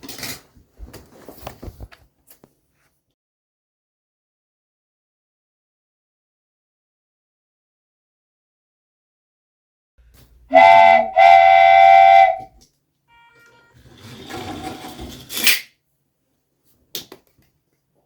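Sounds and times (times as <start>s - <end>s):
train whistle blasts: 10.5s - 13.8s.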